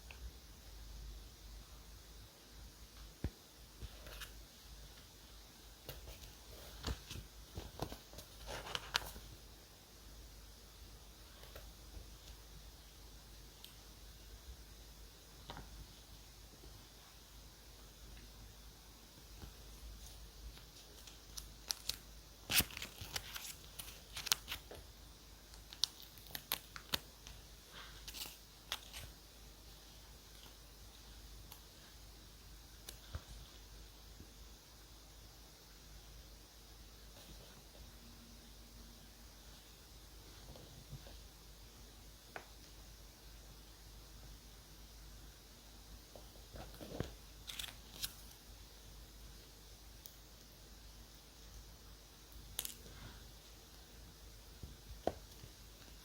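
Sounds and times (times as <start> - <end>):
paper rustling: 5.9 - 9.3, 19.9 - 24.8.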